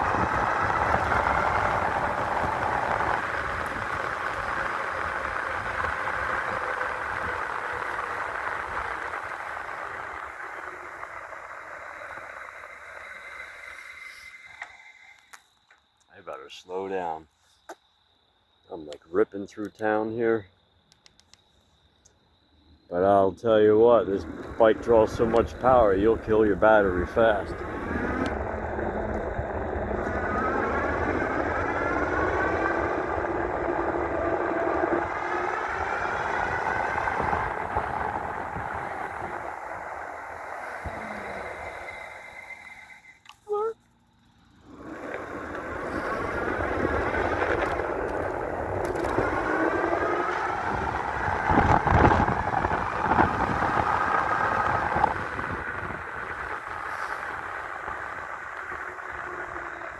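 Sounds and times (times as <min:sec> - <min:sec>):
wind rushing over microphone: 0:00.0 - 0:10.8, 0:23.7 - 0:42.5, 0:44.7 - 0:59.9
road noise from electric bike: 0:00.0 - 0:16.1, 0:19.8 - 0:59.9
electric motor whining: 0:24.2 - 0:43.4, 0:44.6 - 0:59.9.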